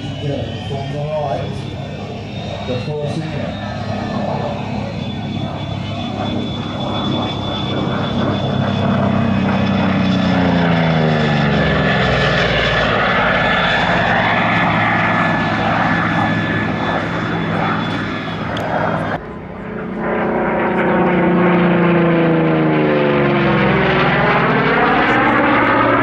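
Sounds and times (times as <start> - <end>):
propeller plane flying past: 0.0 - 26.0.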